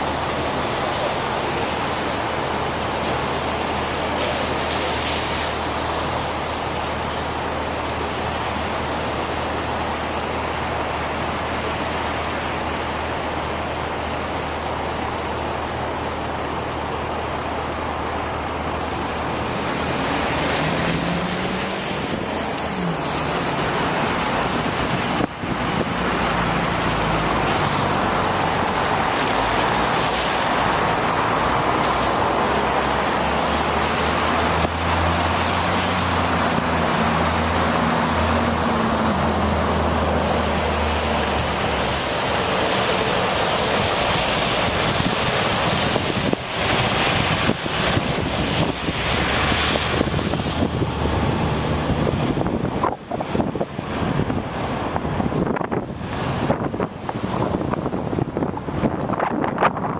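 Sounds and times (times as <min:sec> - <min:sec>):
tyres hissing on wet road: 0:00.0 - 0:59.9
motor vehicle passing: 0:18.7 - 0:53.6.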